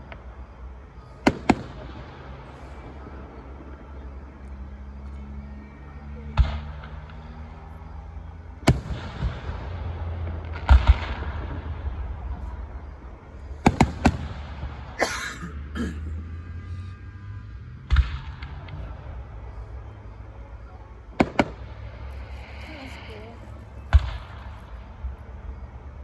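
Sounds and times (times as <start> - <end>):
fireworks banging: 8.6 - 15.0, 21.1 - 25.2.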